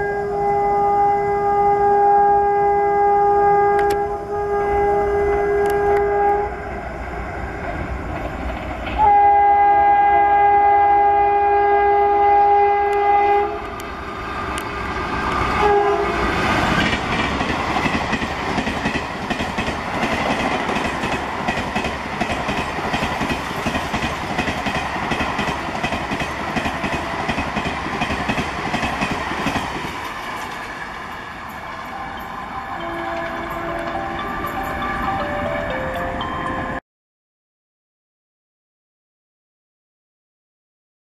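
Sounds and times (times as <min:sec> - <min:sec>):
locomotive horn: 0:00.0 - 0:06.6, 0:09.0 - 0:13.8, 0:15.6 - 0:16.4, 0:31.9 - 0:35.5
train coaches rushing past: 0:04.1 - 0:09.8, 0:11.8 - 0:36.8.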